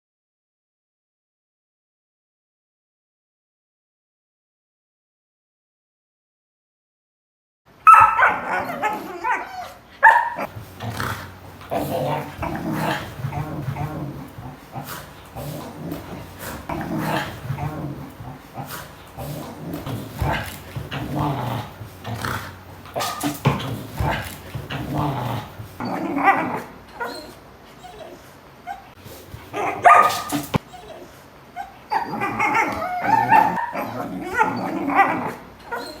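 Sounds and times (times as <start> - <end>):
dogs yipping and barking: 7.8 - 36.0
dogs growling: 7.9 - 30.9, 31.8 - 36.0.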